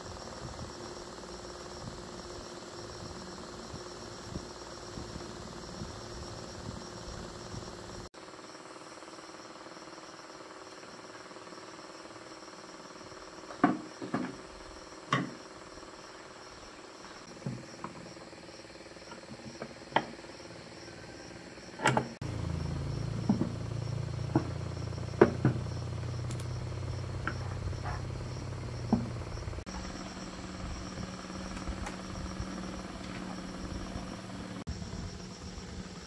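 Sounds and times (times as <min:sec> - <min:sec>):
small diesel engine running: 0:00.0 - 0:36.0.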